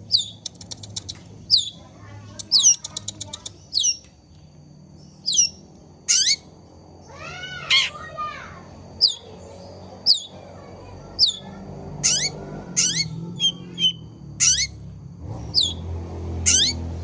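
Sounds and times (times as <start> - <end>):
bird calling: 0.0 - 1.8, 2.5 - 4.0, 5.2 - 6.4, 7.6 - 8.0, 9.0 - 9.3, 10.1 - 10.4, 11.2 - 14.7, 15.6 - 15.8, 16.5 - 16.8.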